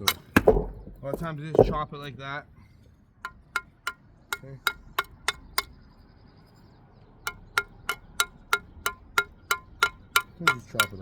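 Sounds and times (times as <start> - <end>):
metal tool striking brick: 0.0 - 2.1, 3.2 - 5.8, 7.3 - 11.0.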